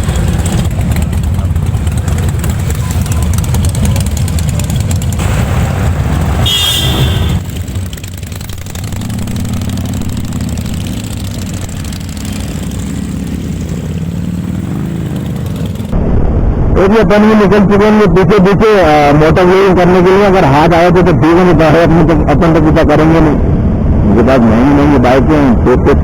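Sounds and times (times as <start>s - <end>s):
motorcycle engines running: 0.0s - 16.0s.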